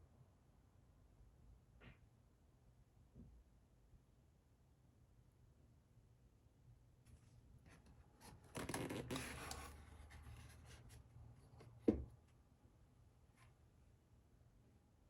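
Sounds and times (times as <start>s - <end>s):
rustling and scraping: 7.1s - 11.8s.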